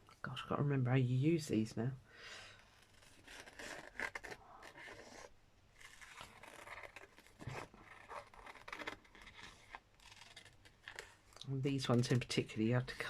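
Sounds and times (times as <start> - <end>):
scratchy strokes: 2.6 - 11.2.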